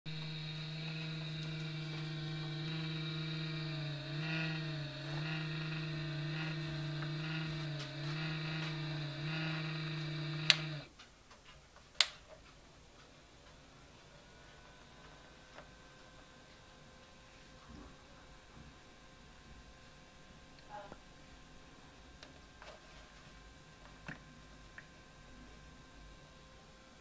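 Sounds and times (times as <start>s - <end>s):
humidifier buzzing: 0.1s - 11.0s, 12.8s - 27.0s
sharp clicks: 0.7s - 10.9s.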